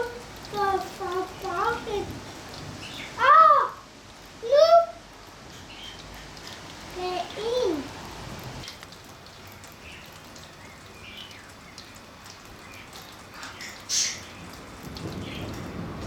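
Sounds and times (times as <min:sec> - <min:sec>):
raindrop ticks: 0:00.0 - 0:03.3, 0:04.2 - 0:16.0
steady rain: 0:00.0 - 0:16.0
rumble of thunder: 0:14.4 - 0:16.0.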